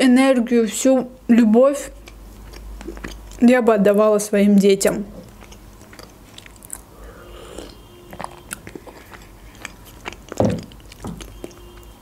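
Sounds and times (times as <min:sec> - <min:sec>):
wet chewing clicks and smacks: 0:01.9 - 0:03.6, 0:04.8 - 0:12.0.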